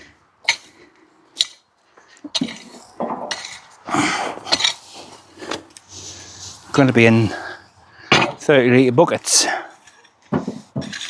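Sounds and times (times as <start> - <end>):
tool scraping through soil: 0.0 - 1.6, 2.2 - 7.5, 9.7 - 11.0.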